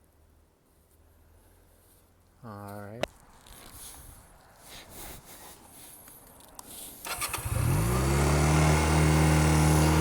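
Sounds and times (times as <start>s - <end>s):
electric starter cranking engine: 7.0s - 10.0s
engine revving and idling: 7.1s - 10.0s.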